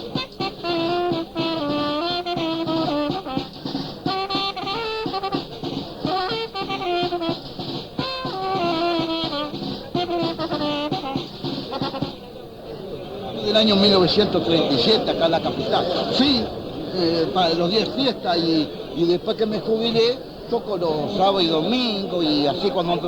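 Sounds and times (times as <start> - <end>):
instrumental melody with drums: 0.0 - 12.7, 13.4 - 18.2.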